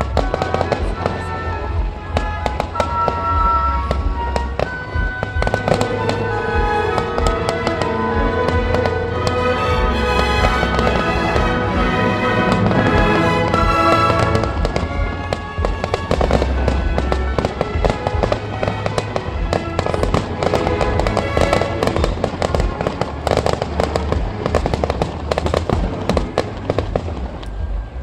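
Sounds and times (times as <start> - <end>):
music playing: 0.0 - 28.0
fireworks bangs and crackles: 10.2 - 27.7.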